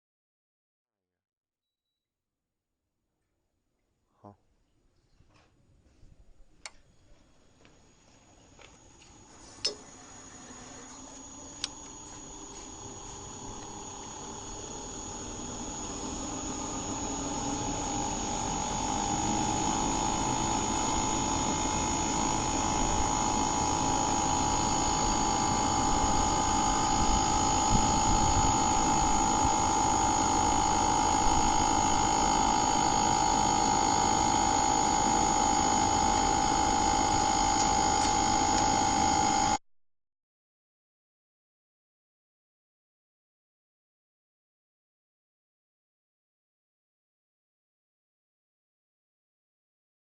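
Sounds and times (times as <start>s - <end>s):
machine whining and humming: 6.6s - 39.6s.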